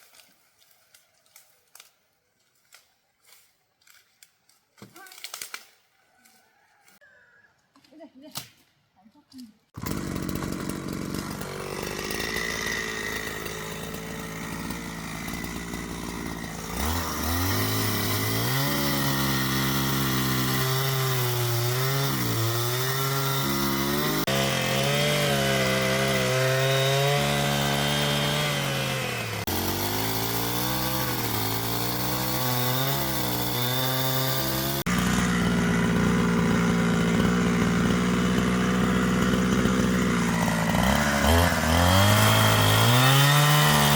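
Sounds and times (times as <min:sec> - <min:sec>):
chainsaw cutting wood: 0:09.7 - 0:43.9.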